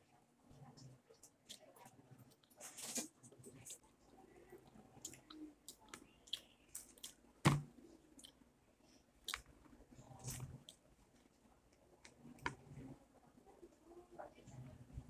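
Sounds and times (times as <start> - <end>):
chewing: 9.2 - 10.8.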